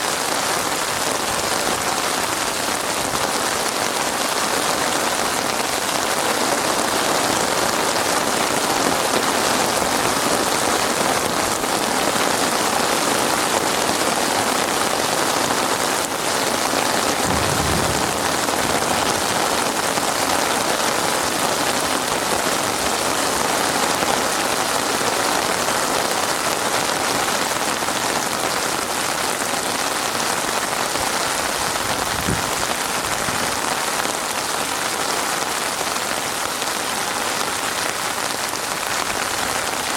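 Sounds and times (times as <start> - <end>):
heavy rain falling: 0.0 - 39.9
low thuds: 17.2 - 19.5.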